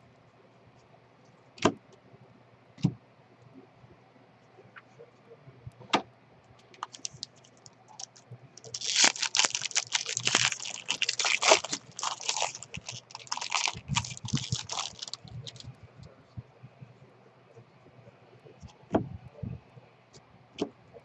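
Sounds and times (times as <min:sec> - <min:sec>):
foil wrapper tearing and crinkling: 0:06.8 - 0:15.6.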